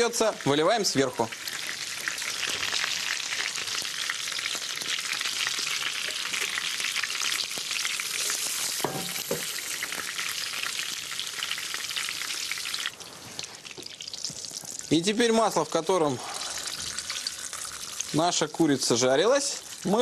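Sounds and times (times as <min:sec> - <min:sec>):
chicken sizzling in a frying pan: 0:00.0 - 0:20.0.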